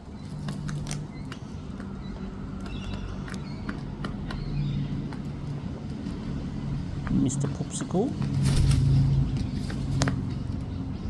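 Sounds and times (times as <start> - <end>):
sharp clicks: 0.4 - 2.0.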